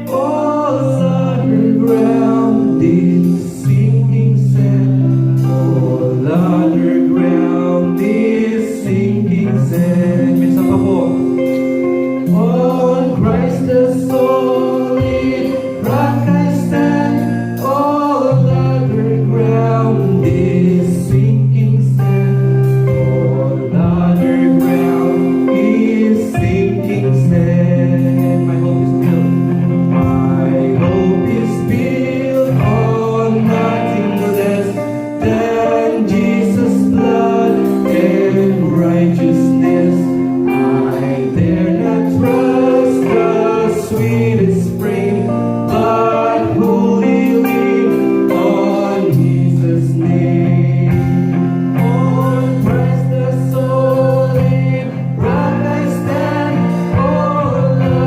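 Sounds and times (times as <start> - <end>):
congregation singing a hymn: 0.0 - 58.0
instrumental accompaniment: 0.0 - 58.0.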